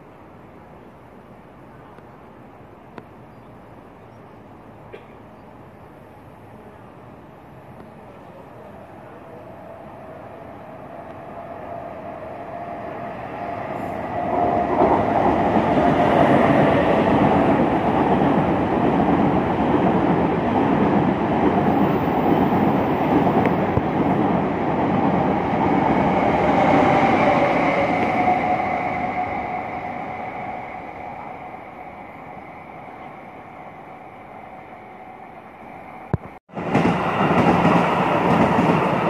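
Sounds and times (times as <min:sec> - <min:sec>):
train wheels rumbling on rail: 0:07.6 - 0:39.0.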